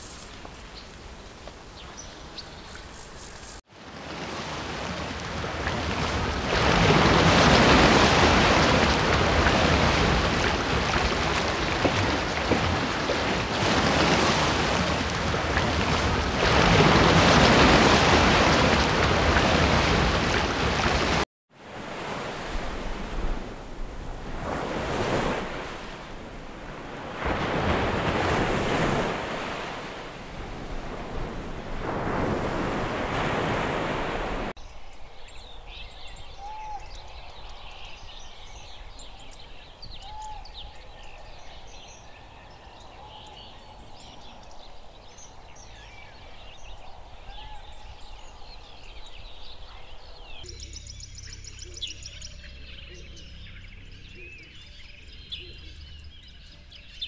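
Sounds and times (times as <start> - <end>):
waves washing and breaking: 3.6 - 34.6.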